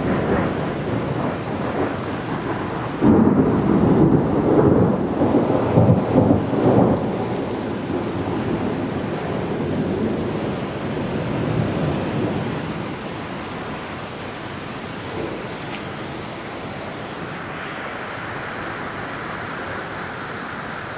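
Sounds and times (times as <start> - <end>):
thunder rumbling: 0.0 - 16.1
rain hissing: 0.0 - 20.9.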